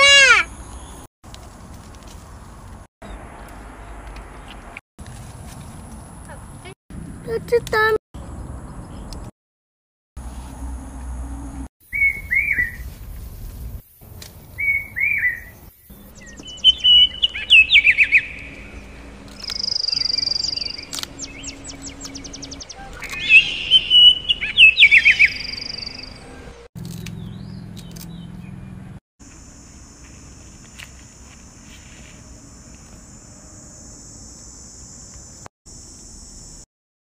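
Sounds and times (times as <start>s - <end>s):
birds chirping and singing: 11.9s - 12.9s, 14.4s - 28.8s.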